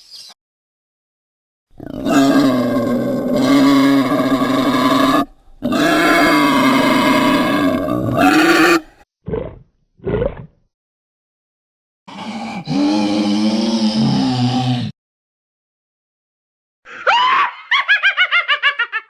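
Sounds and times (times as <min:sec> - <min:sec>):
monster roaring: 0:01.8 - 0:08.9, 0:12.1 - 0:15.0.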